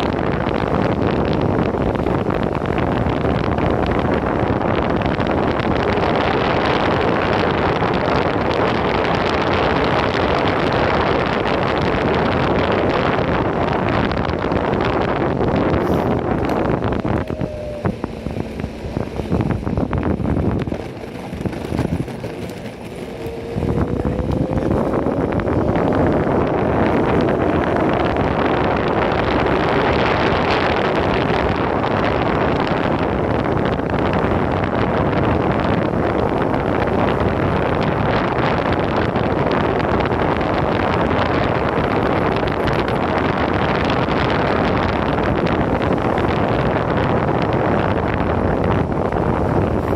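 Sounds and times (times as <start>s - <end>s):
wind buffeting microphone: 0.0s - 49.9s
faint rising whine: 15.7s - 20.8s, 22.8s - 29.5s.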